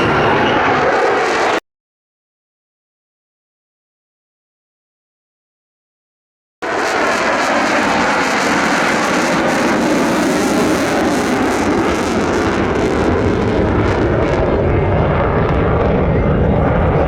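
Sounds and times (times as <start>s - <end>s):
fighter jet engine passing: 0.0s - 1.6s, 6.6s - 17.0s.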